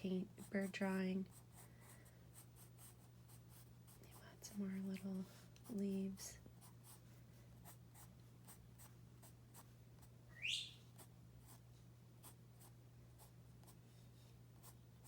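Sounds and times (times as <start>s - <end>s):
pencil drawing on paper: 0.3s - 4.6s
parrot rising whistle: 10.3s - 10.8s.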